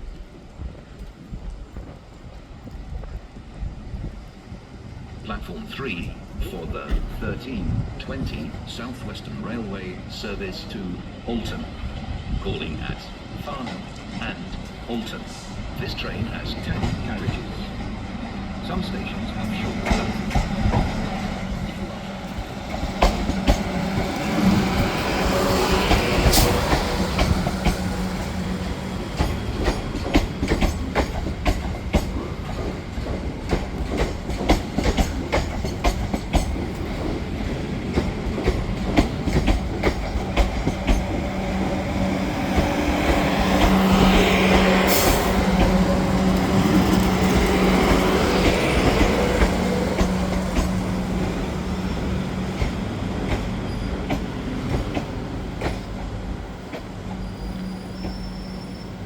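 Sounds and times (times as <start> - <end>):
electric train hum: 0.0 - 59.0
train wheels clicking over rail joints: 5.5 - 8.9, 18.7 - 58.6
wheel or brake squeal: 53.7 - 54.0, 57.2 - 59.0.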